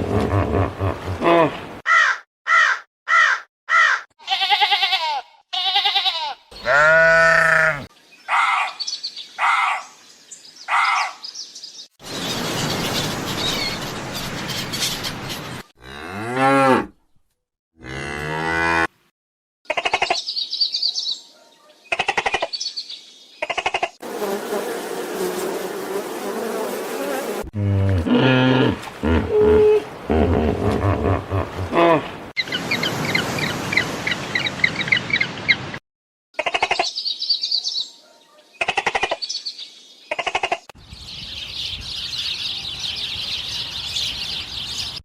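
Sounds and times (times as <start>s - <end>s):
sheep-like bleats: 4.2s - 7.9s
cow mooing: 6.6s - 7.9s, 15.8s - 16.9s, 17.8s - 18.9s, 27.6s - 30.6s
bird chirps and calls: 8.2s - 15.6s, 19.7s - 23.9s, 36.4s - 45.0s.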